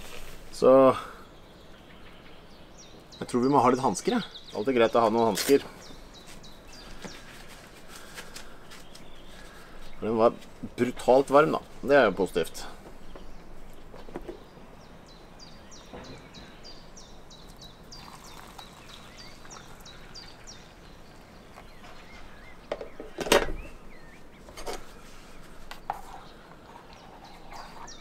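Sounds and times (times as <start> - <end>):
small bird chirping: 13.0 - 28.0.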